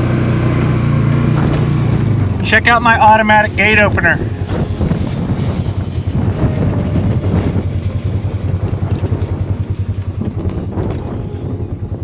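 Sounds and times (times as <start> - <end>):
vehicle engine running: 0.0 - 12.0
wind buffeting microphone: 0.7 - 12.0.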